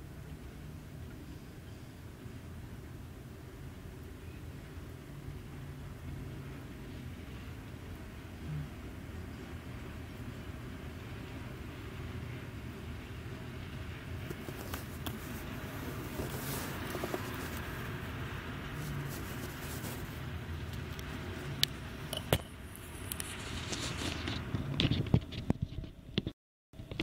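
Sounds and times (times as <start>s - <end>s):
freight train wheels rumbling: 2.2s - 22.2s.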